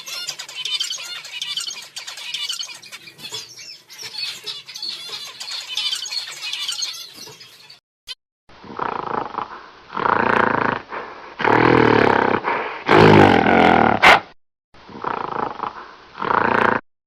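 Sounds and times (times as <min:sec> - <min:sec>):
wild animal roaring and growling: 0:08.6 - 0:14.2, 0:14.9 - 0:16.8.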